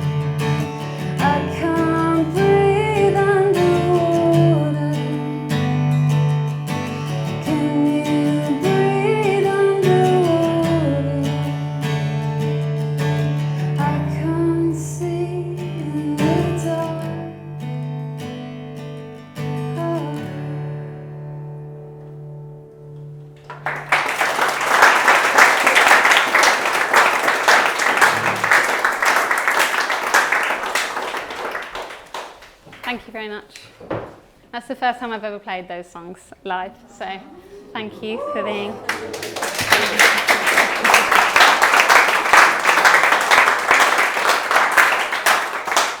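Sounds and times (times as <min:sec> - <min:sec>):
audience applause: 0:23.5 - 0:32.6, 0:38.0 - 0:46.0.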